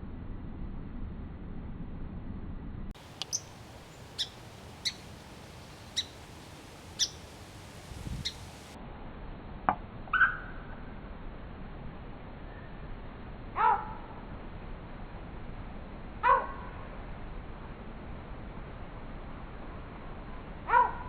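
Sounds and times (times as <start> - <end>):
slowed-down bird chirps: 3.1 - 7.4, 8.1 - 8.8.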